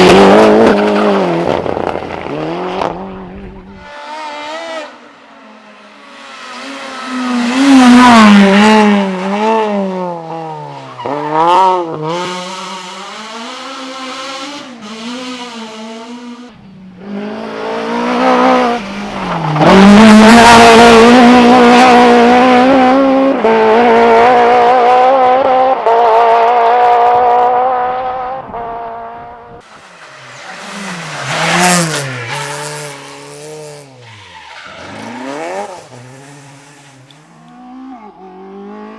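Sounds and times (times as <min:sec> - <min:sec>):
race car engines revving: 0:00.0 - 0:38.9
tyre squeal: 0:31.8 - 0:37.0.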